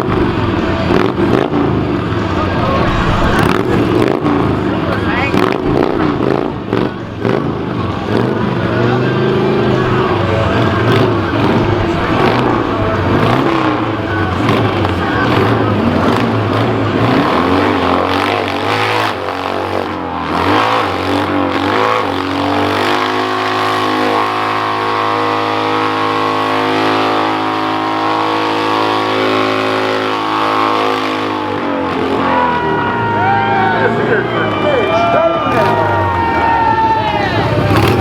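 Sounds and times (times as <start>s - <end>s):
engine revving hard: 0.0s - 38.0s.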